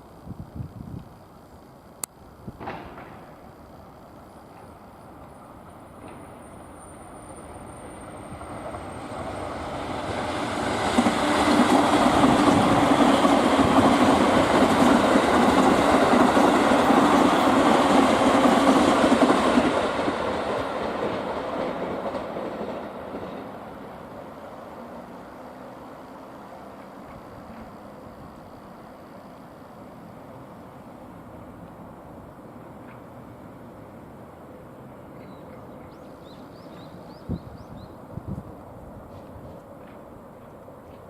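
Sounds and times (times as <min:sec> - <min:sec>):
train wheels clattering on rails: 0:02.6 - 0:03.4, 0:04.5 - 0:24.2, 0:26.7 - 0:27.9, 0:38.4 - 0:41.0.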